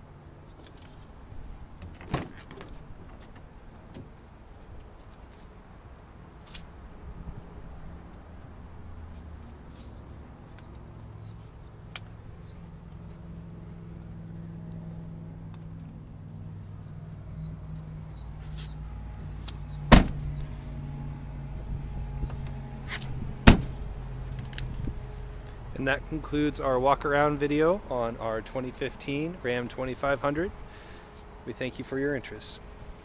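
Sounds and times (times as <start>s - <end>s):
birds chirping: 10.2s - 13.4s, 16.2s - 31.7s
truck engine idling: 11.0s - 33.0s
loud slam: 19.9s - 20.4s, 23.4s - 23.8s.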